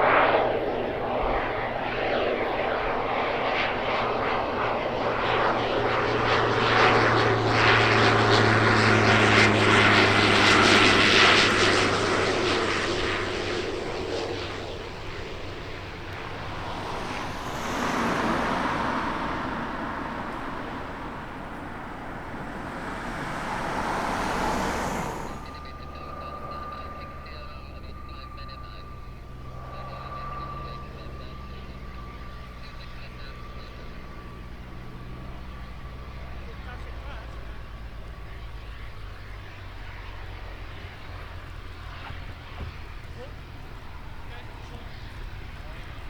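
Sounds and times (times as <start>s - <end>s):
propeller aircraft passing: 0.0s - 46.0s
rushing noise: 15.5s - 25.7s.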